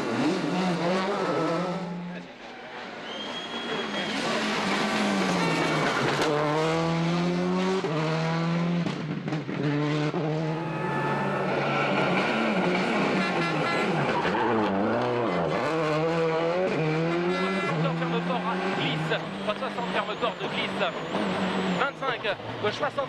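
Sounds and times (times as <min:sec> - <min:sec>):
rally car engine revving: 0:00.0 - 0:02.4, 0:03.1 - 0:23.0.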